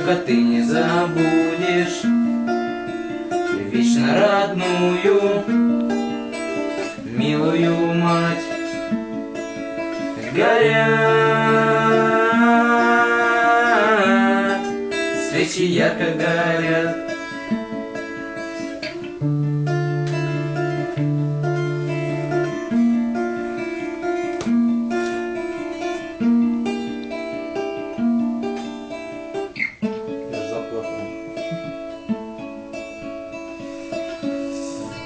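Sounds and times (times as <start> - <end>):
acoustic guitar picking and strumming: 0.0 - 35.0.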